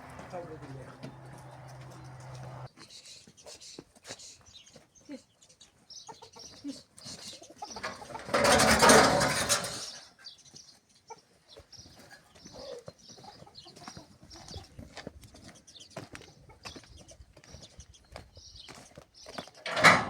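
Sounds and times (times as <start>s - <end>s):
birds chirping faintly: 0.0s - 8.2s.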